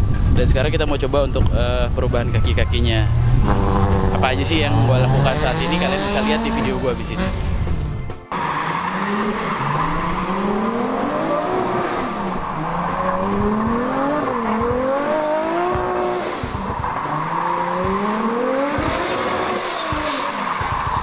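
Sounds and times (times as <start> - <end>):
car engine revving: 0.0 - 21.0
tyre squeal: 8.4 - 21.0.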